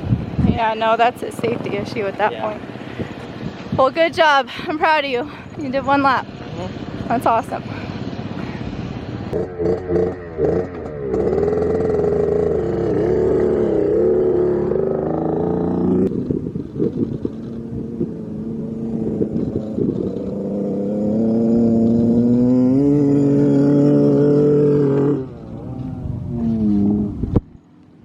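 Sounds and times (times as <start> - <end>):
dirt bike engine revving: 9.3 - 16.2, 16.8 - 27.3.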